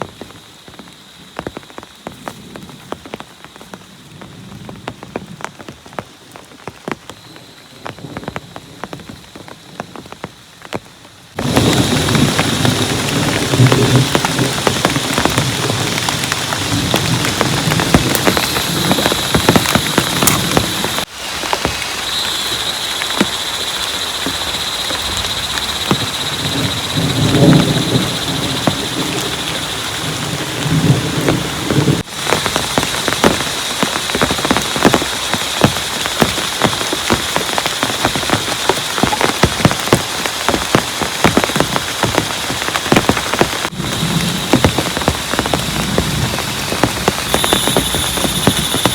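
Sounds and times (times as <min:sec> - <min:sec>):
heavy rain pattering: 0:00.0 - 0:48.9
thunder rumbles: 0:11.3 - 0:21.1, 0:21.7 - 0:48.9.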